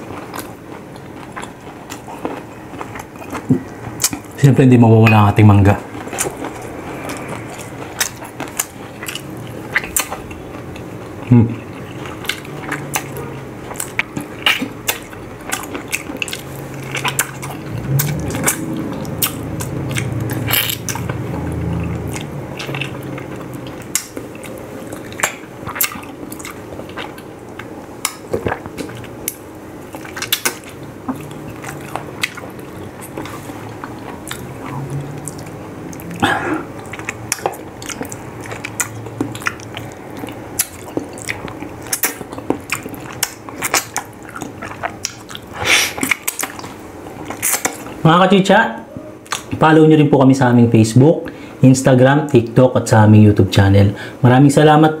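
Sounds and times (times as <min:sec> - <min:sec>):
wet eating sounds: 0:00.0 - 0:48.1, 0:48.9 - 0:49.6
low hum: 0:02.2 - 0:43.4
lip smacks: 0:11.8 - 0:48.0, 0:49.2 - 0:49.6.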